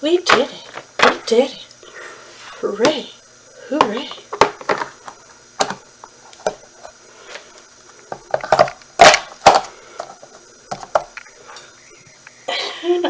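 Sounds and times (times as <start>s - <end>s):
hard objects knocking and clattering: 3.8s - 5.8s, 8.1s - 11.2s.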